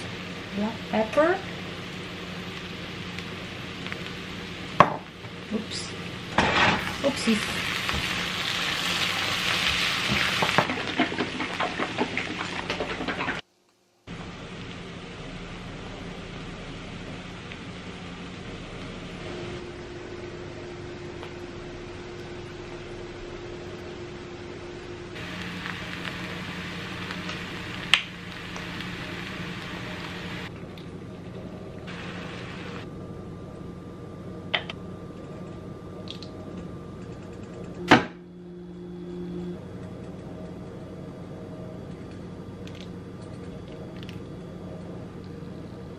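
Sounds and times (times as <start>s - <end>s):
mushrooms sizzling in a pan: 0.0s - 13.4s, 25.2s - 30.5s, 31.9s - 32.9s.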